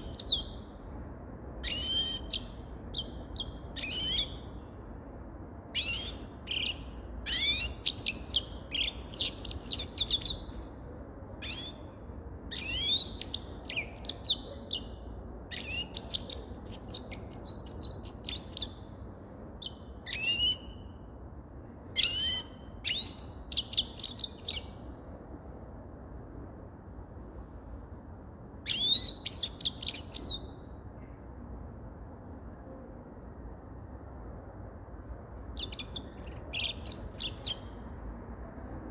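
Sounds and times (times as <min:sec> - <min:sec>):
goldfinch twittering song: 0:05.8 - 0:10.4, 0:35.6 - 0:37.7.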